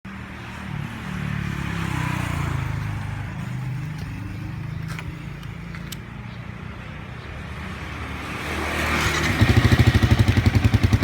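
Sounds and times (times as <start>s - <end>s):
motorcycle engine revving: 8.0s - 11.0s.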